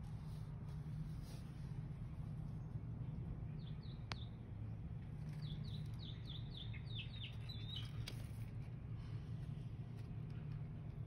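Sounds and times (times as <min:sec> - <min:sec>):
steady low hum: 0:00.0 - 0:11.0
small bird chirping: 0:03.5 - 0:04.5, 0:05.2 - 0:08.4.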